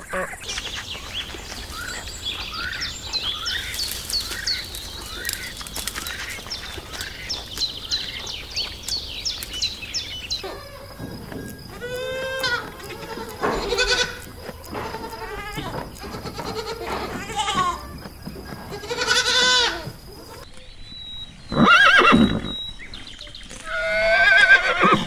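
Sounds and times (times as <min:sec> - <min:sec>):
goats bleating: 0:10.4 - 0:20.4.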